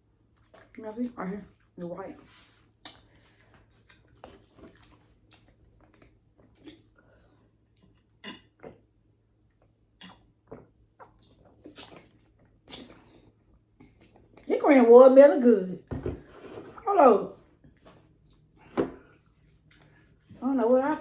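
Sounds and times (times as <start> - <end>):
chewing and mouth smacks: 0.3 - 0.8, 1.5 - 7.0, 9.5 - 14.5, 17.6 - 20.4.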